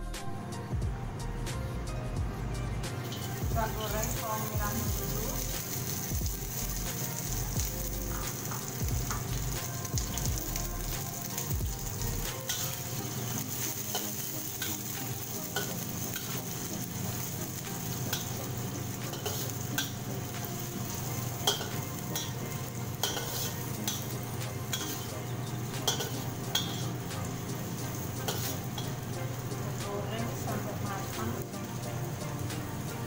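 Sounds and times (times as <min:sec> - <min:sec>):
shallots sizzling in oil: 0:03.0 - 0:33.0
metal spatula scraping wok: 0:10.2 - 0:31.9.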